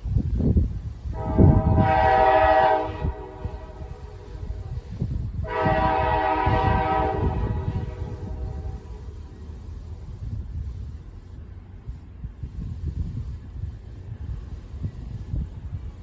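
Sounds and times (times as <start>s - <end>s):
continuous low rumble: 0.0s - 16.0s
train horn blasts: 1.1s - 4.8s, 5.4s - 9.1s.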